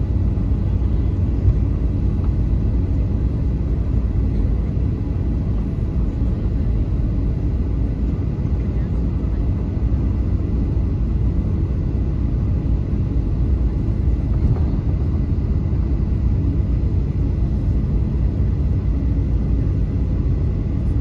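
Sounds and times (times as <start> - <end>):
airplane cabin engine rumble: 0.0 - 21.0.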